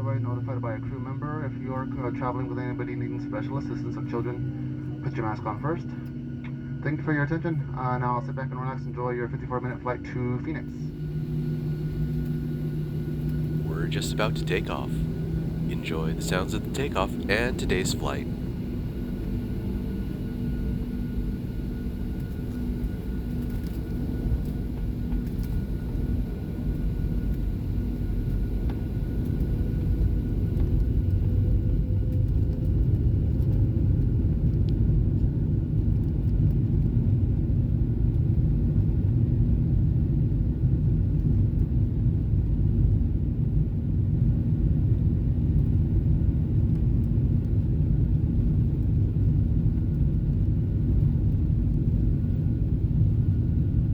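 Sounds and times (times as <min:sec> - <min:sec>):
jet engine rumble in cabin: 0:00.0 - 0:53.9
faint steady whine: 0:10.2 - 0:34.0.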